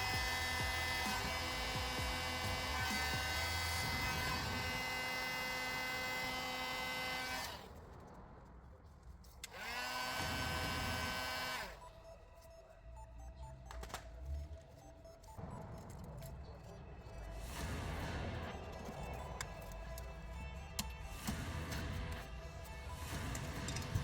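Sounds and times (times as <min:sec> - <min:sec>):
power tool motor whining: 0:00.0 - 0:07.7, 0:09.4 - 0:11.8.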